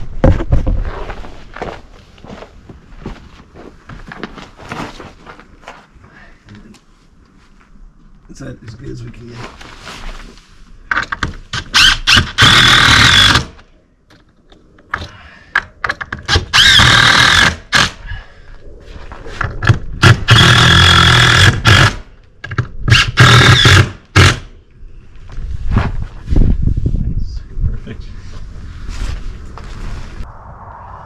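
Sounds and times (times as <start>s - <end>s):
power drill driving screws: 11.6s - 13.5s, 16.3s - 17.9s, 20.0s - 22.0s, 22.9s - 24.4s.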